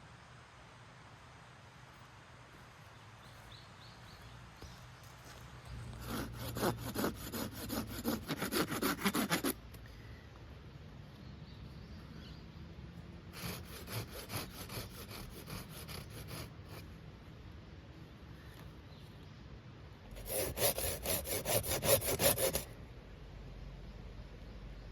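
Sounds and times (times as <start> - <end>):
rhythmic rasping scraping strokes: 5.9 - 9.6, 13.4 - 16.8, 20.2 - 22.7.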